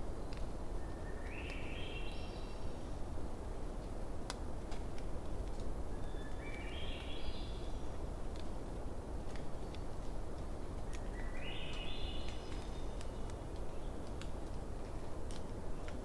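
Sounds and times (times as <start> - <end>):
campfire crackling and popping: 3.8 - 5.8, 8.2 - 11.1, 11.8 - 16.0.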